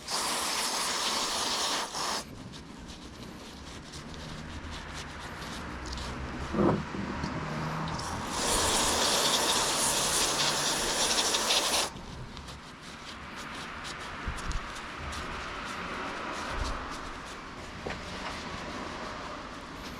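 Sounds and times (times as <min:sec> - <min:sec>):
aerosol spray hiss: 0:00.0 - 0:02.3, 0:08.0 - 0:11.9.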